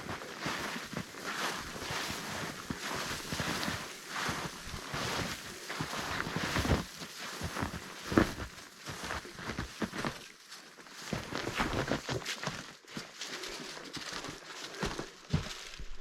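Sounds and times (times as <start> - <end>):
footsteps crunching through brush: 0.0 - 16.0.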